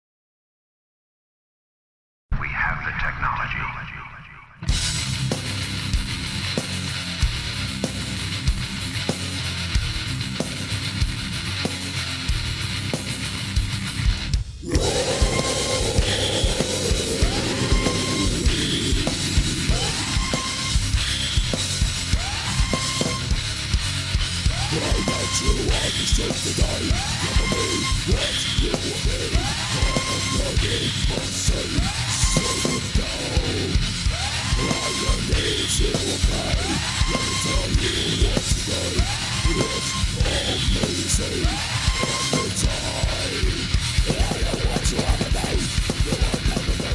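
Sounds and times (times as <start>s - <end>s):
heavy metal music: 3.7s - 46.9s
heavy metal song: 4.0s - 46.9s
pounding drums: 14.3s - 46.9s
shouted vocals: 14.6s - 21.2s, 24.4s - 46.9s.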